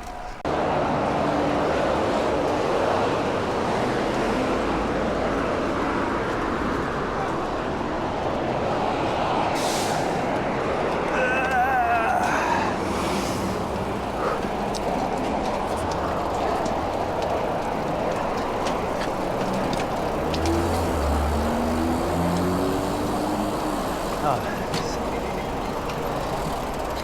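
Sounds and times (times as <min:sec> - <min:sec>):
wind and road noise: 0:00.0 - 0:27.0
vehicle engine: 0:12.3 - 0:27.0.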